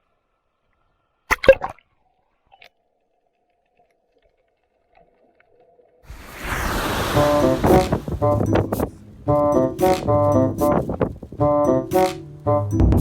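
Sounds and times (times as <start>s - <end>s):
rush of noise: 6.1s - 9.0s
seawater splash: 6.1s - 11.0s.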